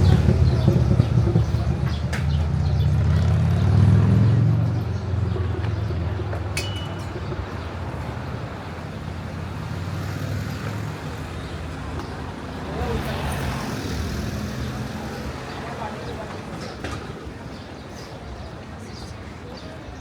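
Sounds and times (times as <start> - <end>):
vehicle engine passing: 0.0 - 6.2.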